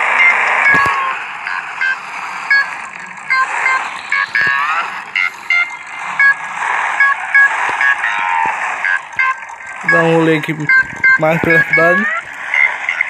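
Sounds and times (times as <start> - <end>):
high-pitched electronic music: 2.5 - 6.4, 7.0 - 12.3.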